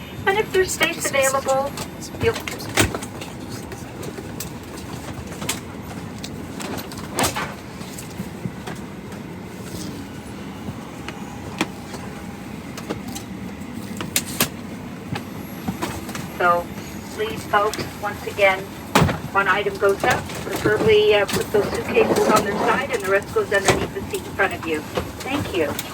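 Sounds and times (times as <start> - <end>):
cabin air system rushing: 0.0 - 5.1.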